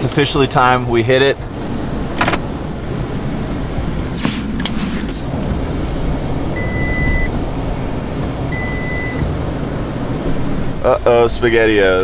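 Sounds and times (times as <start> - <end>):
van engine rumbling: 0.0 - 12.0
reversing beep: 6.6 - 7.3, 8.5 - 9.2.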